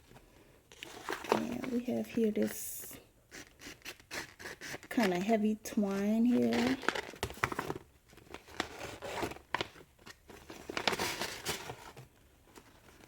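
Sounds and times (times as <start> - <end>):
paper packaging rustling: 0.0 - 2.6, 5.9 - 13.0.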